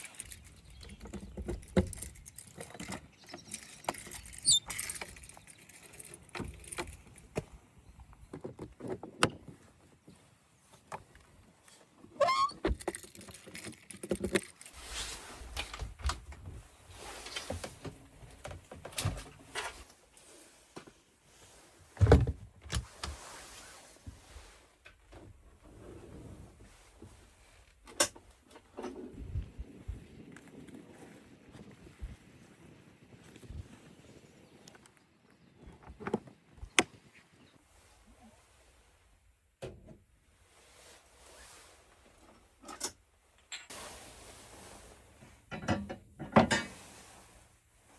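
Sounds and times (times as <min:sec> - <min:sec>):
objects being handled: 0:00.0 - 0:24.4
short wavering squeak: 0:04.4 - 0:04.8.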